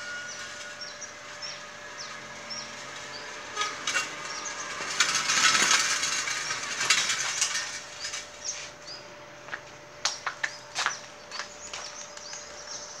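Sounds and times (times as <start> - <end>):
small birds chirping: 0.3 - 3.4, 7.9 - 13.0.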